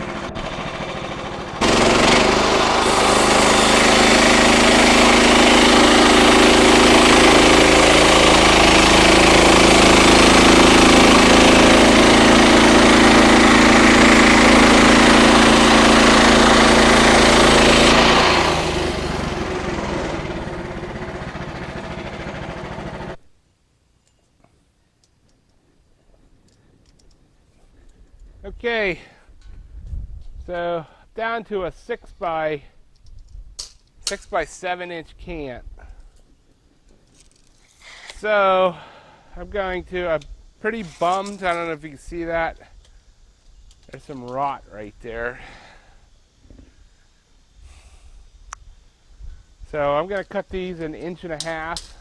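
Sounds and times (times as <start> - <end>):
bandsaw blade cutting log: 0.0 - 23.2
sawmill engine running: 0.0 - 23.2.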